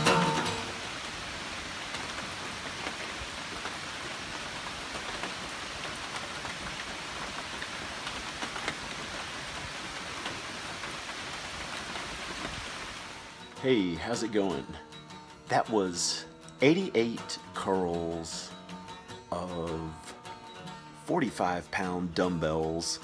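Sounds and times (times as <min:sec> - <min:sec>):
rain falling on leaves: 0:00.0 - 0:14.8.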